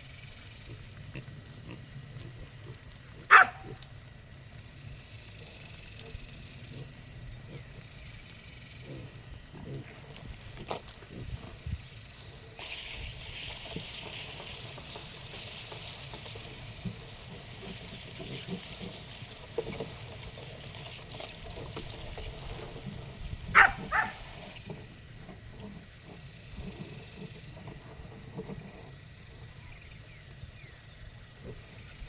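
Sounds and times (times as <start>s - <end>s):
pigs grunting and snuffling: 0.0s - 30.6s, 31.2s - 32.0s
steady hiss: 0.0s - 32.0s
pig squealing: 3.2s - 3.8s, 23.6s - 24.3s.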